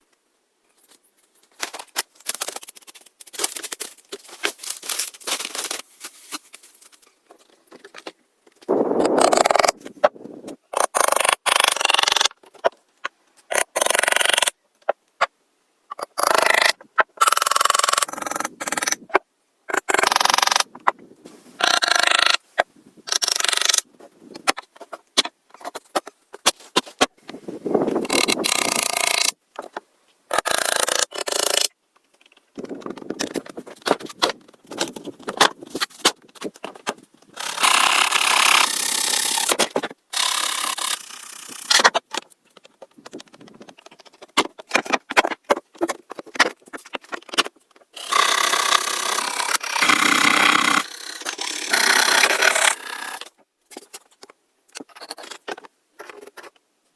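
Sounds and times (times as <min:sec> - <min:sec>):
hand tool scraping wood: 0:43.1 - 0:53.3.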